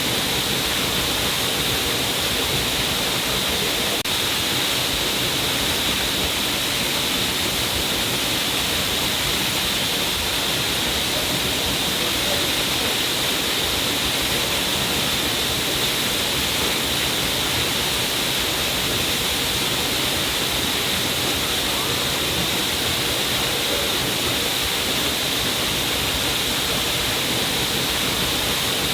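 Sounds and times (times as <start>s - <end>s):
water pouring down a cliff: 0.0s - 28.9s.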